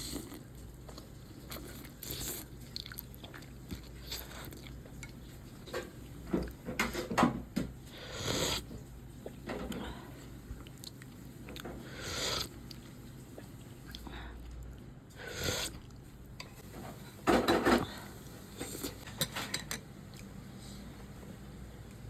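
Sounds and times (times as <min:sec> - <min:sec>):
person chewing food: 0:00.0 - 0:05.7, 0:08.2 - 0:16.4.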